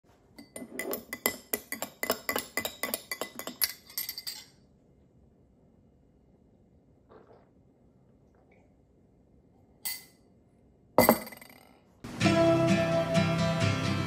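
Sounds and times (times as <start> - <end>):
hard objects clinking: 0.4 - 4.6.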